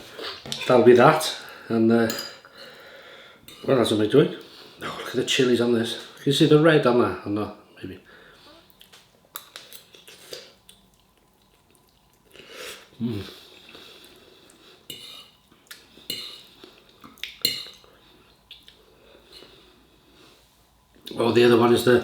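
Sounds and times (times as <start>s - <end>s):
cutlery clinking on a plate: 2.1s - 2.4s.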